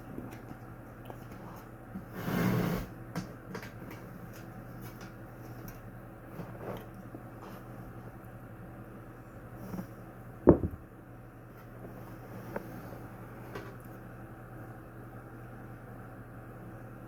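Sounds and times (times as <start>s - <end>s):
steady low hum: 0.0s - 17.0s
rustling scrape: 1.3s - 2.9s, 11.8s - 13.5s.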